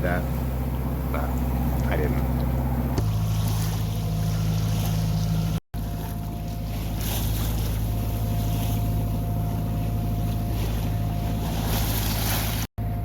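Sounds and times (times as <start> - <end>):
boat engine humming: 0.0 - 13.0
wind and water rushing: 2.9 - 12.7.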